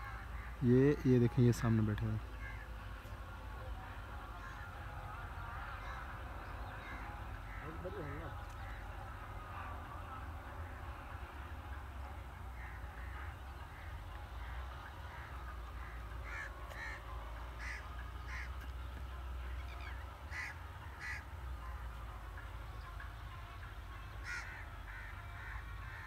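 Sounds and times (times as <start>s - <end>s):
bird calling: 0.0s - 3.2s, 3.8s - 21.8s, 22.4s - 26.0s.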